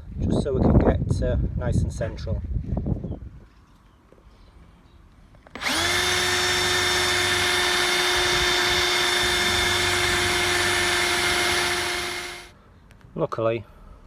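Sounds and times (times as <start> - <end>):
electric drill whining: 5.6 - 12.5.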